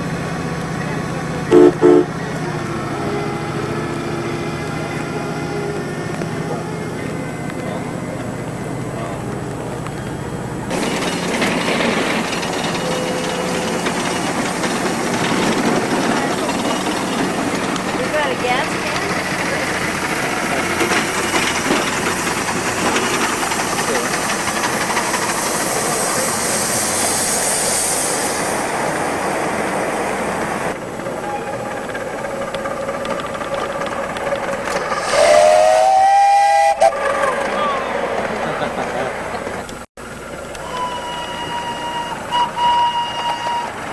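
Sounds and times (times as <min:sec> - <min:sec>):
steam engine hissing: 0:01.3 - 0:04.3, 0:10.1 - 0:43.9
steam whistle blowing: 0:01.5 - 0:02.3, 0:34.9 - 0:37.8, 0:40.6 - 0:43.9.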